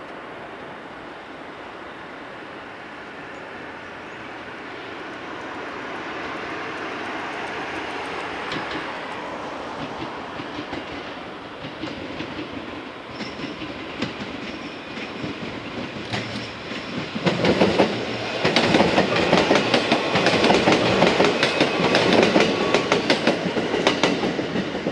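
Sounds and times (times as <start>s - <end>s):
electric train passing: 0.0s - 24.9s
wheels clacking over rail joints: 7.3s - 24.9s.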